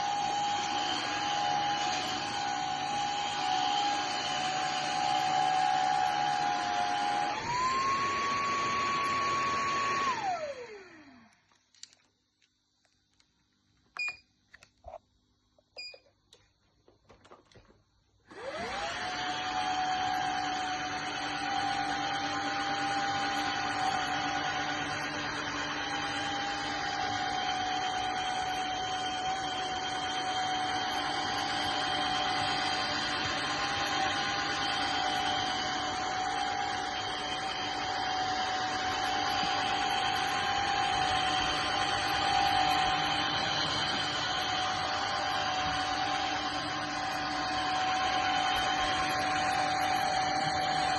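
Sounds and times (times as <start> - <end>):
vacuum motor whining: 0.0 - 11.4, 18.3 - 50.9.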